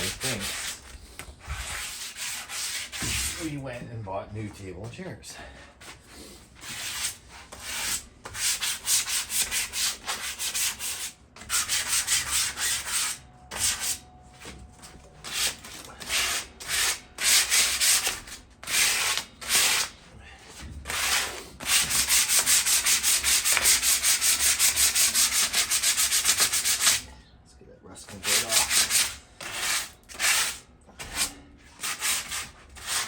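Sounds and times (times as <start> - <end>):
sandpaper rubbing rusted metal: 0.0 - 0.9, 1.5 - 3.5, 6.6 - 14.0, 15.2 - 19.9, 20.9 - 27.1, 28.1 - 33.0.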